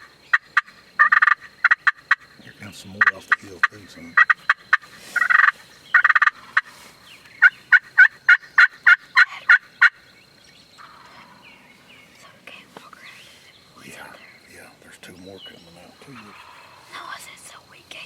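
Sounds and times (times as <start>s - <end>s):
turkeys clucking and gobbling: 0.0s - 12.2s, 15.8s - 17.2s
hen turkey yelping: 0.3s - 2.4s, 3.0s - 10.0s, 10.8s - 11.4s, 16.2s - 17.1s.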